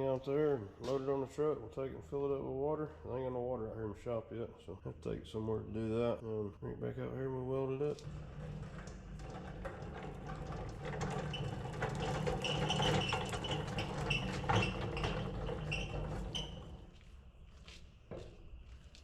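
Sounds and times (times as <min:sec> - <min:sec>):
floor jack wheels rumbling: 0:08.0 - 0:16.9.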